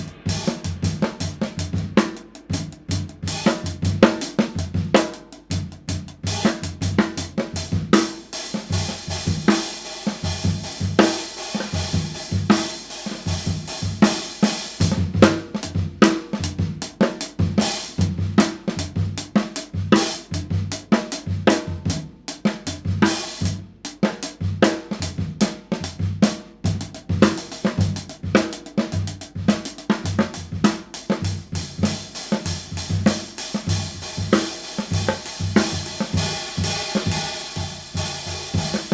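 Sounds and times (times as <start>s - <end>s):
hi-hat cymbals: 0.0s - 5.7s, 8.1s - 15.1s, 30.2s - 38.9s
kick drum and snare: 0.0s - 38.9s.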